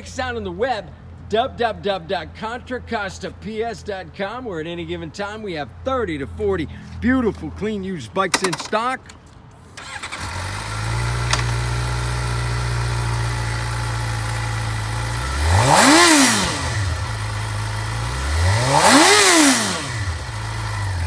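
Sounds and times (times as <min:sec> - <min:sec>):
motorcycle engine idling and revving: 0:09.8 - 0:21.0.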